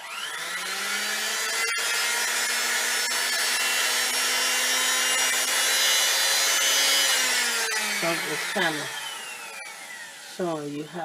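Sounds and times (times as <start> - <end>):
sewing machine motor humming: 0.0 - 10.8.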